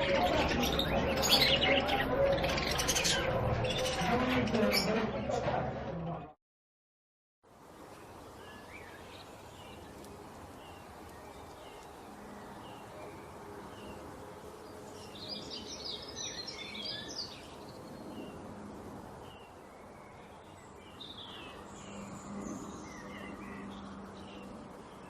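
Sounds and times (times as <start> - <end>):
songbird chirping: 7.7 - 25.0.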